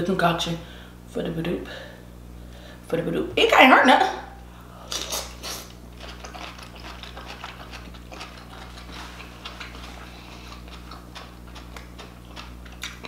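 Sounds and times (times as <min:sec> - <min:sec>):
low steady hum: 0:00.0 - 0:13.0
wet mouth chewing clicks and smacks: 0:05.0 - 0:13.0.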